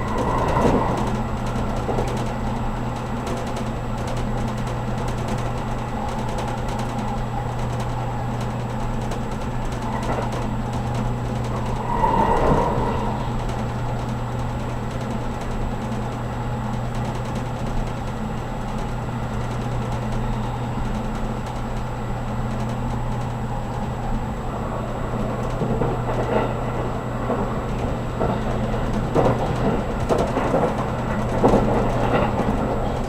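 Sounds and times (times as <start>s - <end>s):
train cabin hum and rumble: 0.0s - 33.0s.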